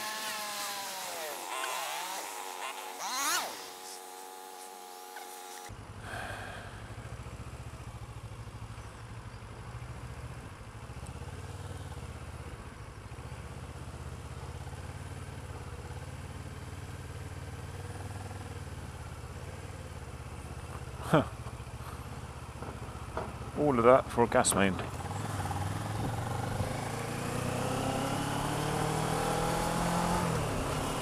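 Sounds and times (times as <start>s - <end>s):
road hiss: 3.2s - 9.3s
motorcycle engine running at low revs: 4.1s - 31.0s.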